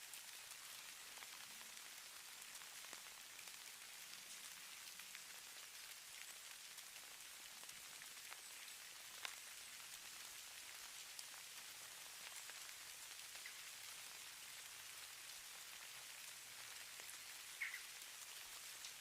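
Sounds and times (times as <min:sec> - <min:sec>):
falling snow pattering: 0:00.0 - 0:19.0
light ticks: 0:09.2 - 0:09.4.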